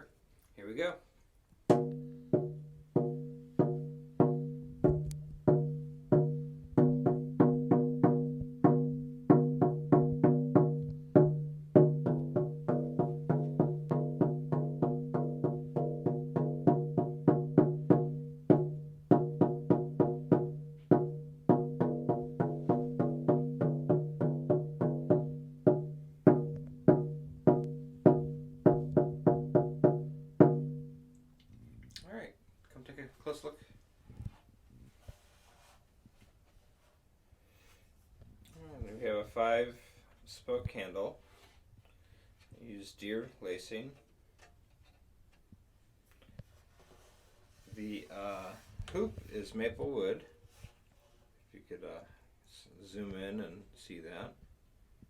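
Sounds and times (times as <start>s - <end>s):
frame drum struck with deep tone: 1.7s - 31.0s.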